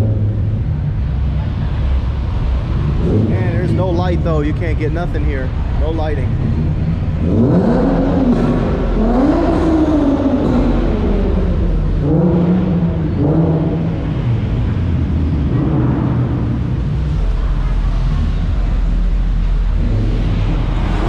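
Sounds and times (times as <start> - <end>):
car engine revving: 0.0 - 21.0
low engine rumble: 0.0 - 21.0.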